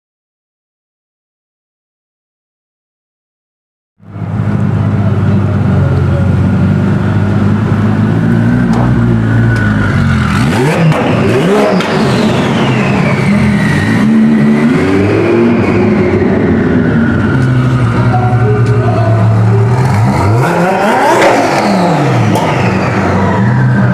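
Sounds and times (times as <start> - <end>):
engine revving: 4.0 - 23.9
sports car engines rumbling: 4.0 - 23.9
car accelerating away: 4.1 - 23.9.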